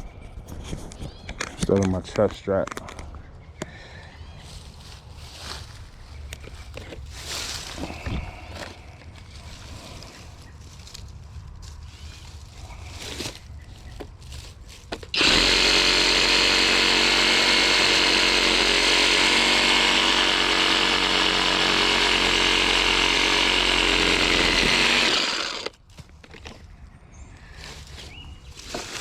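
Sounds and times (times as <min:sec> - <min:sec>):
reciprocating saw cutting branch: 0:15.1 - 0:25.7.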